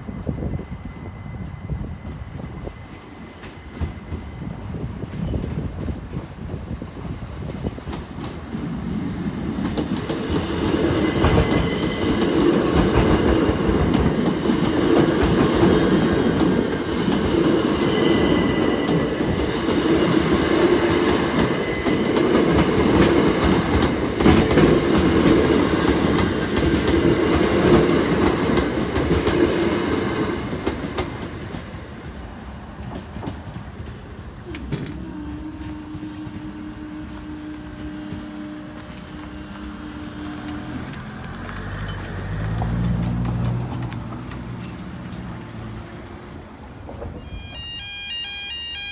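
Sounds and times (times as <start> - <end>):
train wheels clattering over rail joints: 9.6 - 32.2.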